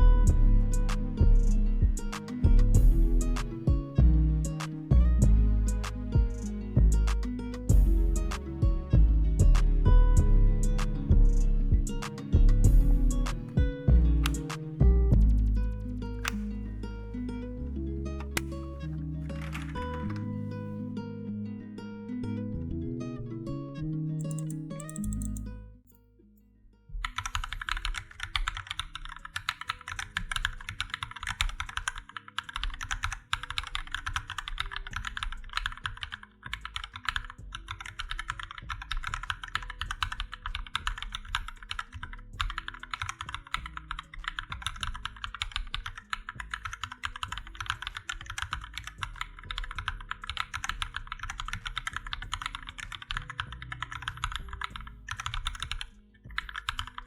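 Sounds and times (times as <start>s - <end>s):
mechanical keyboard typing: 19.4s - 20.3s, 24.2s - 25.5s, 27.1s - 57.0s.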